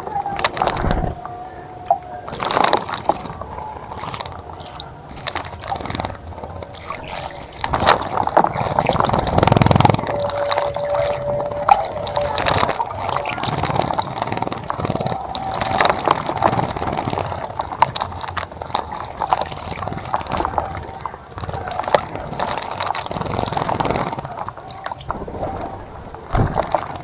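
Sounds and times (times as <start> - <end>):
water splashing in birdbath: 0.0 - 27.0
bird chirps: 4.4 - 16.0.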